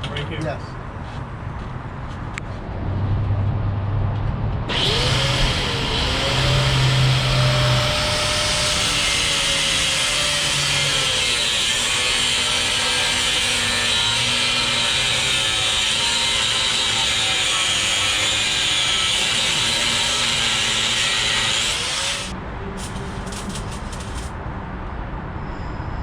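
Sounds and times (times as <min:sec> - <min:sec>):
power tool grinding: 0:04.7 - 0:24.3.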